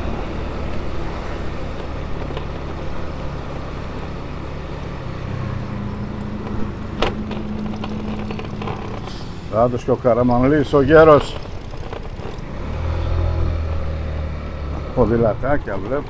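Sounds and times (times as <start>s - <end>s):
motorcycle engine running: 5.6s - 9.1s, 10.2s - 16.0s.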